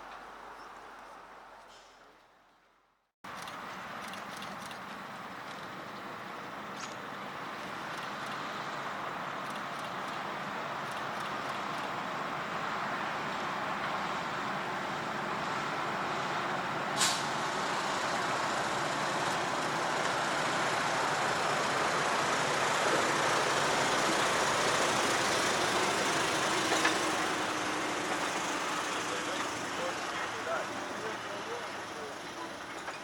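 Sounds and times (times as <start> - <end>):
railcar running: 3.3 - 33.0
short sharp air hiss: 17.0 - 17.4.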